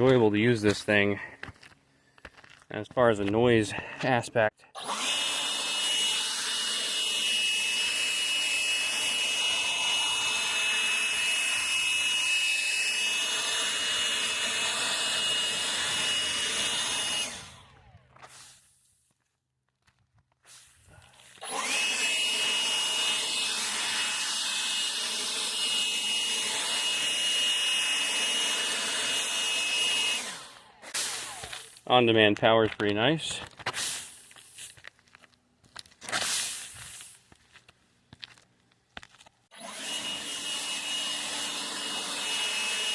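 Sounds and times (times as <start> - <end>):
leaf blower whining: 3.7 - 18.4, 20.9 - 34.8, 39.5 - 42.9.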